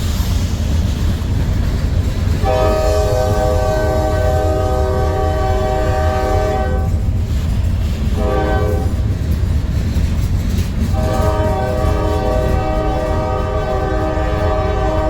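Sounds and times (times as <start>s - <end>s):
train rumbling: 0.0s - 15.0s
locomotive air horn: 2.4s - 7.0s, 8.2s - 9.0s, 10.9s - 15.0s.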